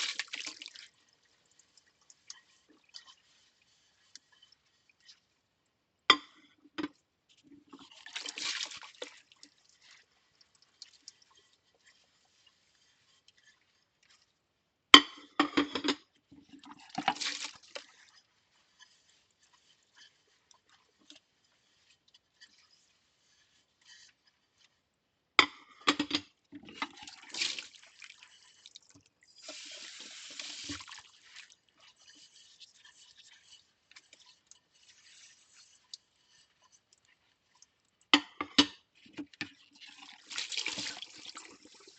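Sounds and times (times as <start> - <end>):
scrubbing dishes: 0.0 - 5.1, 15.0 - 24.7, 25.4 - 41.9.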